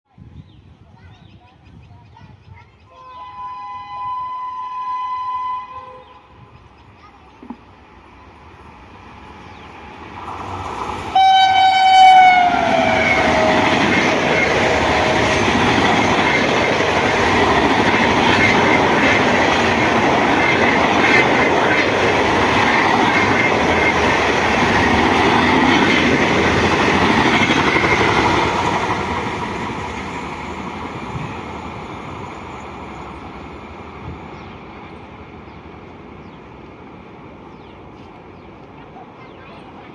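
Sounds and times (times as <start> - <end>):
train horn: 2.9 - 6.4, 11.1 - 15.6.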